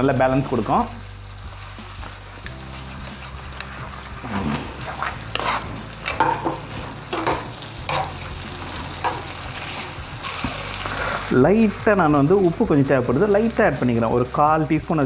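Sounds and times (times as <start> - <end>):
chicken sizzling in a pan: 0.0 - 15.0
metal tongs stirring: 1.3 - 11.8.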